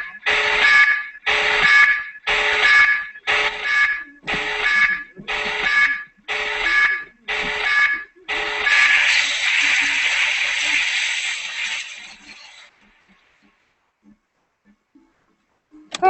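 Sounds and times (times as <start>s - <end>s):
electronic alarm beeping: 0.0s - 12.7s
hiss: 8.3s - 13.1s.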